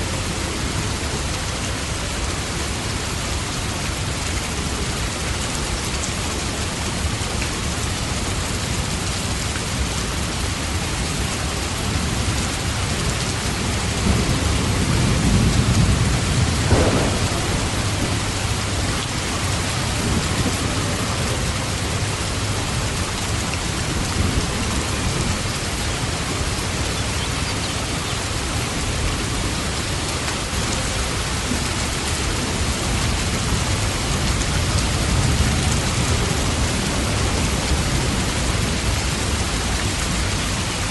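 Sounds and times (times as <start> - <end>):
heavy rain: 0.0 - 40.9
thunder rolling and cracking: 14.0 - 22.0.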